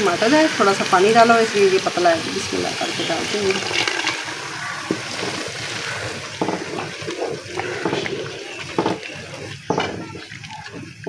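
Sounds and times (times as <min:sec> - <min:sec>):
tomato paste sizzling: 0:00.0 - 0:11.0
wooden spoon scraping pot: 0:03.5 - 0:11.0
spoon knocking against pot: 0:06.4 - 0:07.0.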